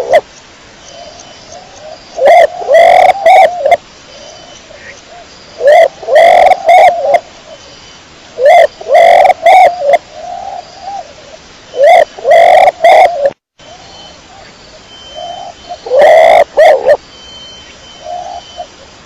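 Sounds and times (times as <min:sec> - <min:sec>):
pigeon cooing: 0:02.2 - 0:03.8, 0:05.6 - 0:07.2, 0:08.4 - 0:11.1, 0:11.8 - 0:13.4, 0:15.1 - 0:17.0.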